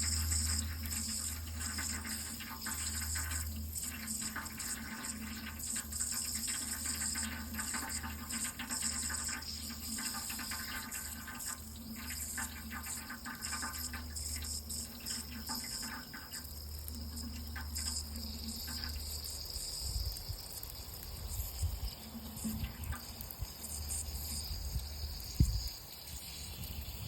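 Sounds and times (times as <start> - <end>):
water splashing and trickling: 0.0 - 27.0.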